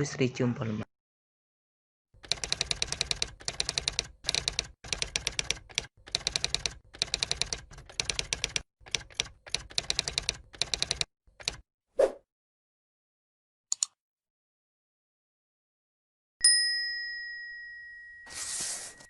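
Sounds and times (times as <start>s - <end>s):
rapid keyboard clicks: 2.2s - 11.6s.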